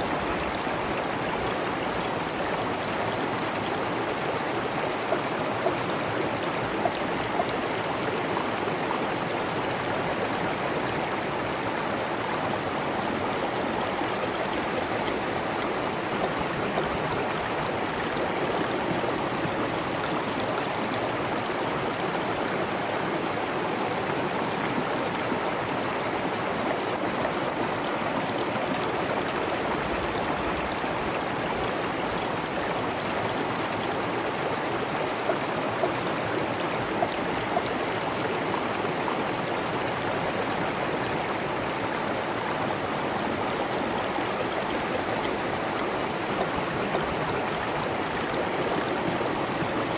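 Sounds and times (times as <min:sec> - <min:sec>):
stream running water: 0:00.0 - 0:49.9.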